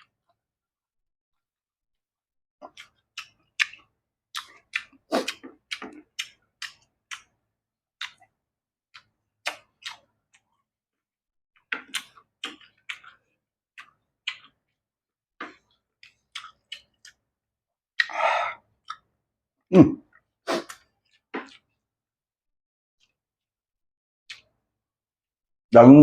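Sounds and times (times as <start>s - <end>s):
chewing and lip smacks: 2.6s - 7.4s, 8.0s - 10.7s, 11.6s - 14.8s, 15.4s - 17.3s, 18.0s - 19.2s, 20.0s - 21.8s, 24.3s - 24.6s.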